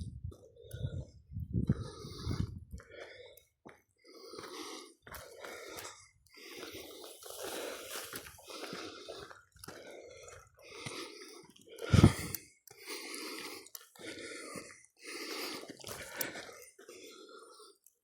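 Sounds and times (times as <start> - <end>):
person breathing hard: 0.3 - 18.0.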